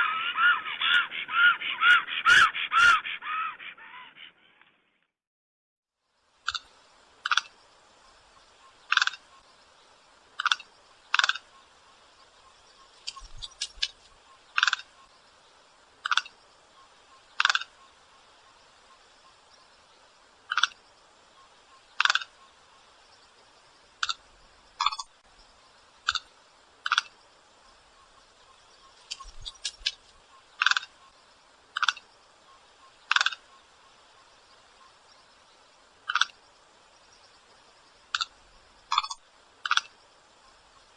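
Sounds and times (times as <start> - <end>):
stork calling: 0.0 - 4.6, 8.5 - 9.5, 10.3 - 15.2, 15.9 - 19.5, 20.5 - 22.7, 26.0 - 27.2, 27.9 - 35.0, 36.1 - 36.4, 38.1 - 40.0.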